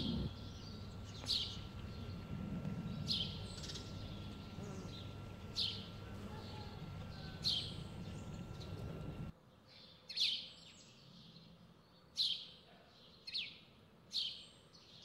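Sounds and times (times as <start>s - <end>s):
low outdoor rumble: 0.0s - 9.3s
small bird chirping: 0.0s - 9.3s.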